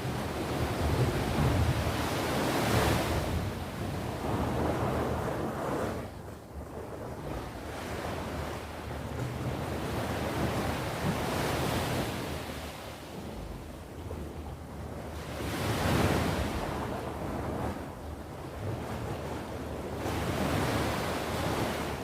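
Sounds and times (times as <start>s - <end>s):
sea waves washing on shore: 0.0s - 14.3s
wind rumble on microphone: 0.0s - 22.0s.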